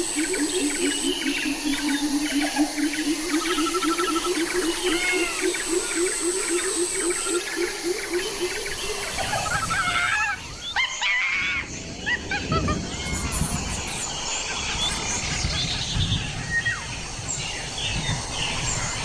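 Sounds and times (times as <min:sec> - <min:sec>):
birds chirping and whistling: 0:00.0 - 0:19.0
insect drone: 0:00.0 - 0:19.0.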